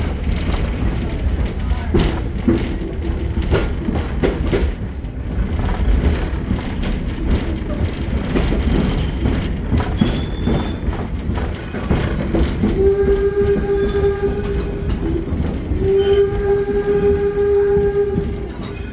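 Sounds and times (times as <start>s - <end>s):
train rumble: 0.0s - 18.9s
wheels clicking over rails: 0.0s - 18.9s.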